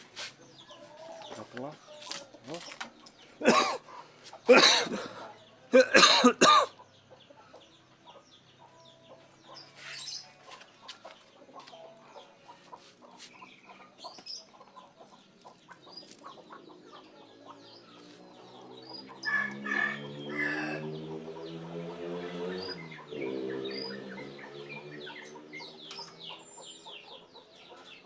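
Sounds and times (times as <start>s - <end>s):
chickens clucking: 0.0s - 28.0s
low drone rising in pitch: 18.4s - 26.2s.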